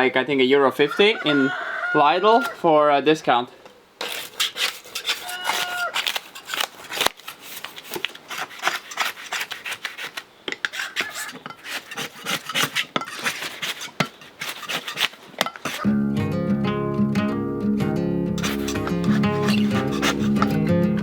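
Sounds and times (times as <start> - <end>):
metal brush scraping wood: 0.6 - 1.5, 2.2 - 2.8, 4.0 - 15.9, 18.4 - 20.7.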